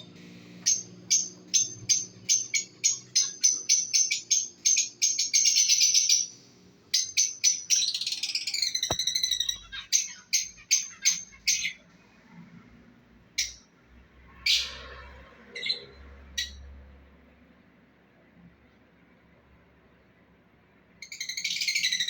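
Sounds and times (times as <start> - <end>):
lovebirds chirping: 0.6 - 11.8.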